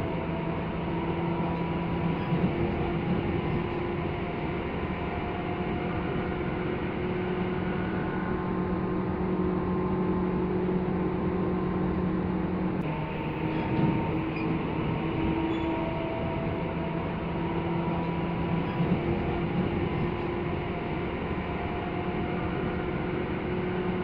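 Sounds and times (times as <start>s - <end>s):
electric train running interior: 0.0s - 24.0s.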